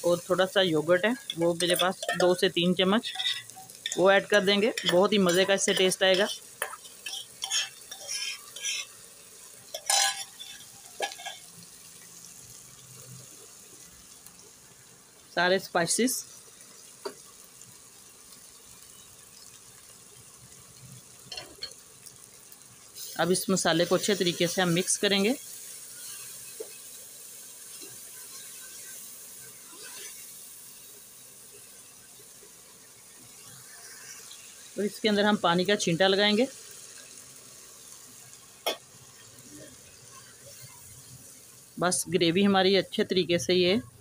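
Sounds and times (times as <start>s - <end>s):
onions and tomatoes sizzling in pan: 0.0s - 44.0s
spoon scraping against pan: 1.0s - 11.6s, 25.9s - 26.9s, 29.6s - 30.3s.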